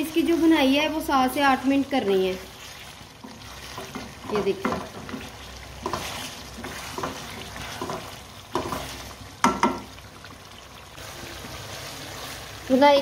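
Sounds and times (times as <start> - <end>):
meat sizzling in a metal pot: 0.0 - 13.0
wooden spoon scraping and knocking pot: 2.6 - 10.0.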